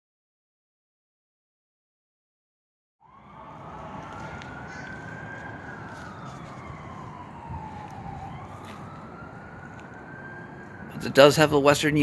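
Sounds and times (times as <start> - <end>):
low rumble of traffic: 3.0 - 12.0
siren wailing: 3.0 - 12.0.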